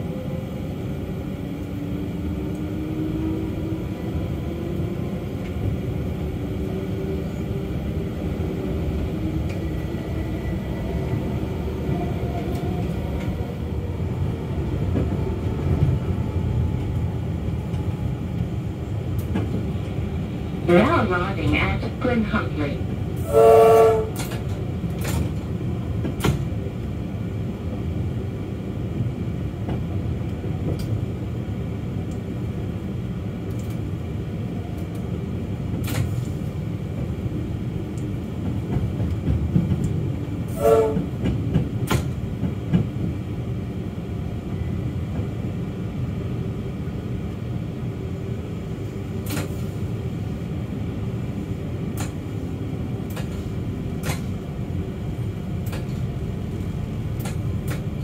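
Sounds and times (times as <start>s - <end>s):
train rumbling on track: 0.0s - 58.0s
train horn toot: 23.2s - 24.3s, 40.5s - 41.2s.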